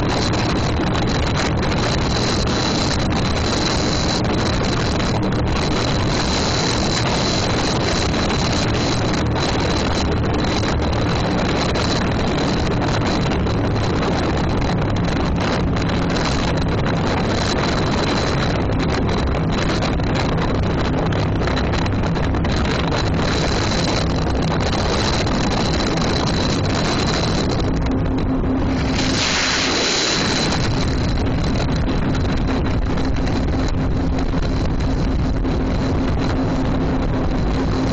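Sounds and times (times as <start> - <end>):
motorboat engine running: 0.0 - 37.9
wind buffeting microphone: 0.0 - 37.9.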